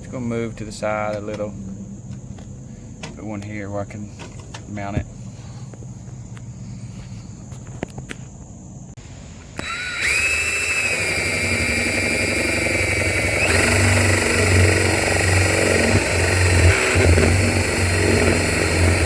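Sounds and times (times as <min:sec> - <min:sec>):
electric drill whining: 0:09.6 - 0:19.0.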